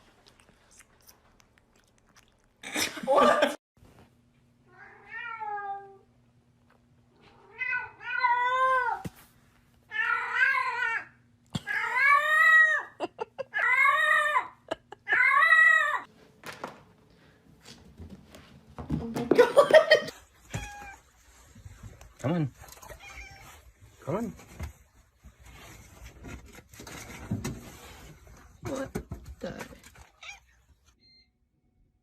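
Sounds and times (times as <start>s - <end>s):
cat meowing: 22.8s - 23.5s.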